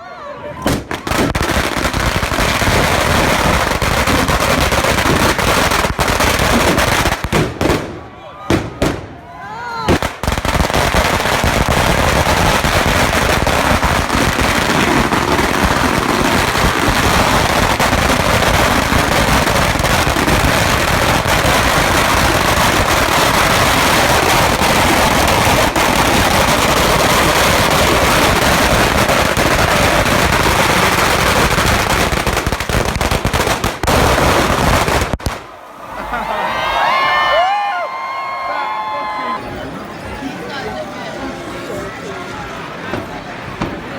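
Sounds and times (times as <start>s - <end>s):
firecrackers popping: 0.6s - 9.2s, 9.8s - 35.6s.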